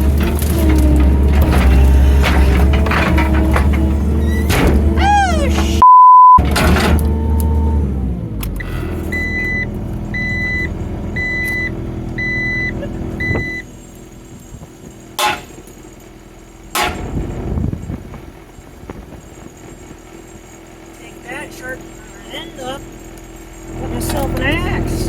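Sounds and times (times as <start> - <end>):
skid steer engine running: 0.0 - 5.8, 6.4 - 25.0
reverse alarm beeping: 5.8 - 6.4, 9.1 - 13.7.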